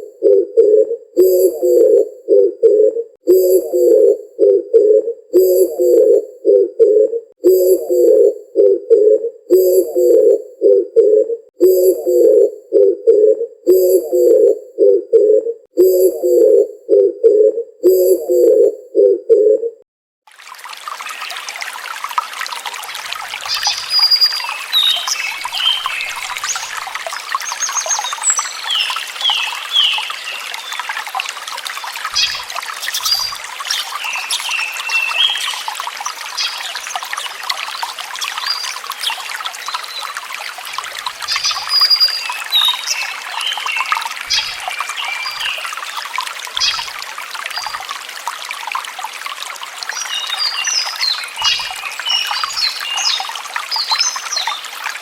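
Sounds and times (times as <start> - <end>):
water trickling: 20.2 - 55.0
small birds chirping: 32.1 - 40.1.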